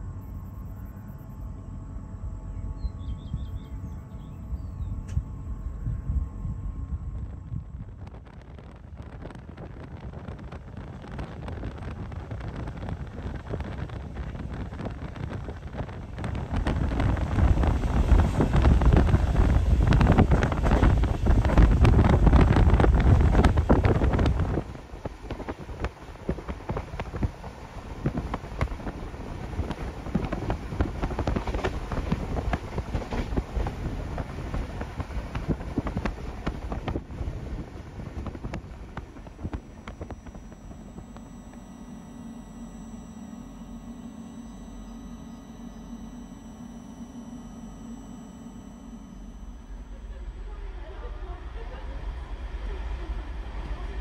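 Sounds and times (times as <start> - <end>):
rushing wind noise: 4.4 - 50.5
train wheels rumbling on rails: 7.1 - 40.4, 49.6 - 54.0.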